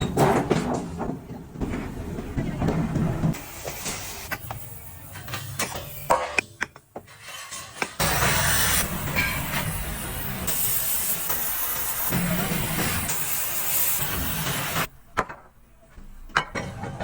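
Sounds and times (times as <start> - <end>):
machinery running with hiss: 8.0 - 14.9.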